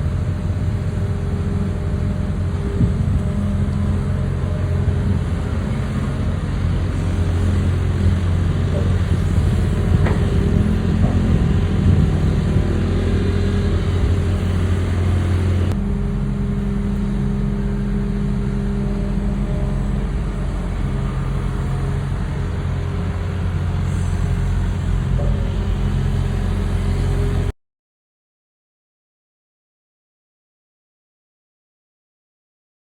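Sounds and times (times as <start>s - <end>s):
excavator diesel engine running: 0.0s - 27.5s.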